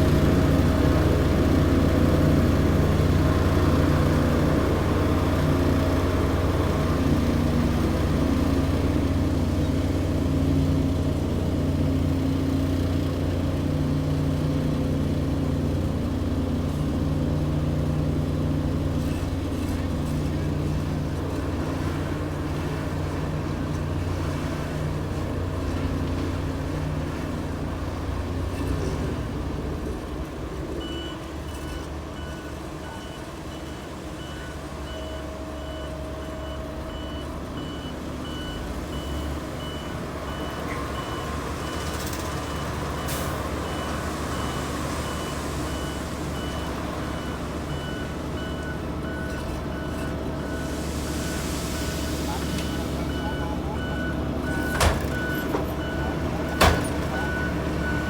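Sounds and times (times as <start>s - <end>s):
truck diesel engine running: 0.0s - 58.0s
reversing alarm beeping: 30.8s - 58.0s.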